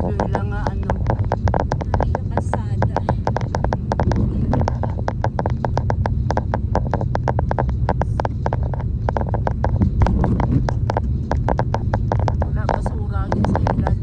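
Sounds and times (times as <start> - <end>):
low rumble of engine and road: 0.0 - 14.0
raindrops tapping on vehicle: 0.0 - 14.0.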